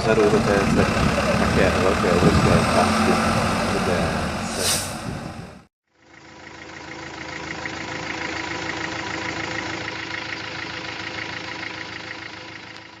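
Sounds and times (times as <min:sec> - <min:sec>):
truck engine idling with ticking: 0:06.0 - 0:13.0.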